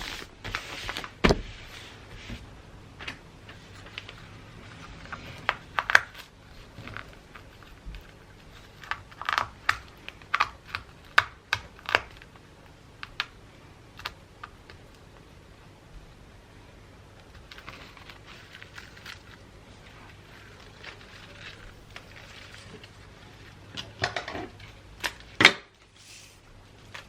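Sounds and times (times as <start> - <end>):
gift wrapping crinkling: 17.2 - 23.8.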